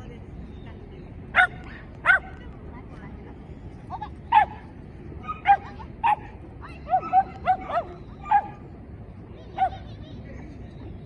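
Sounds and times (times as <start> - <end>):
dog yipping: 5.2 - 8.6.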